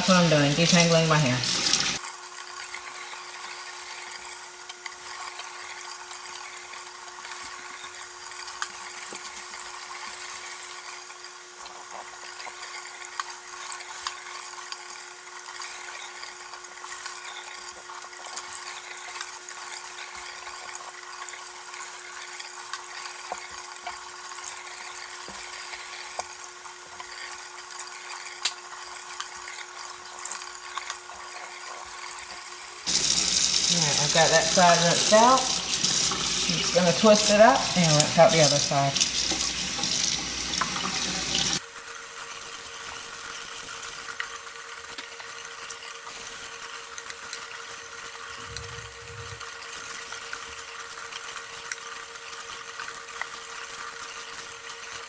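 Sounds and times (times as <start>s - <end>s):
tap water running into sink: 0.0s - 2.0s, 32.9s - 41.6s.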